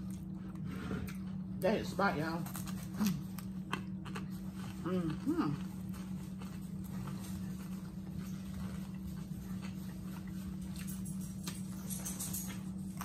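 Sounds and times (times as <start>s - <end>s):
people chewing: 0.0s - 13.0s
steady low hum: 0.0s - 13.0s.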